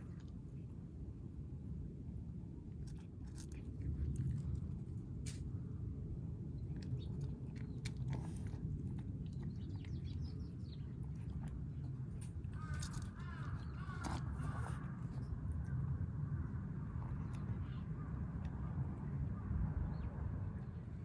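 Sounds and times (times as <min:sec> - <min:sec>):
steady low rumble: 0:00.0 - 0:21.0
kittens chewing food: 0:02.6 - 0:05.4, 0:06.3 - 0:15.6.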